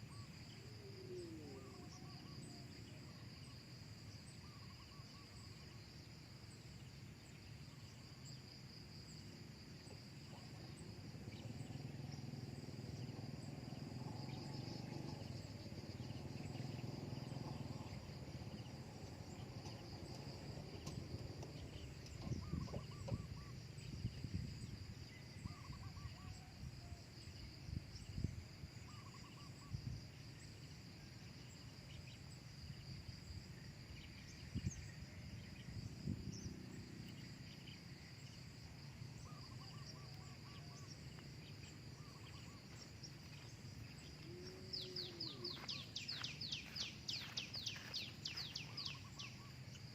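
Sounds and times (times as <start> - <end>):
insects chirring: 0.0 - 49.9
low outdoor rumble: 10.7 - 23.2.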